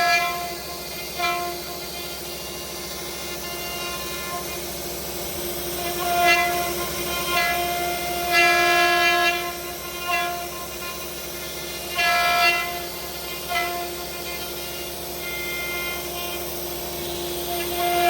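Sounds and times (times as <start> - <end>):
router bit cutting wood: 0.0 - 18.0
router spindle whining: 0.0 - 18.0.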